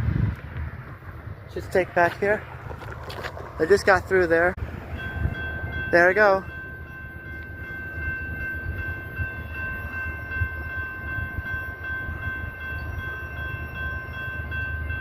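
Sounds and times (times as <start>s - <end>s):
train rumbling over track: 0.0s - 15.0s
high-pitched ringing tone: 4.7s - 15.0s.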